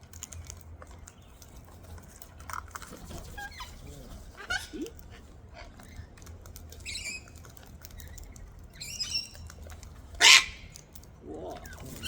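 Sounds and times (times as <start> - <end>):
cockatoos chirping: 2.9 - 12.0
harsh cockatoo screech: 10.2 - 10.6.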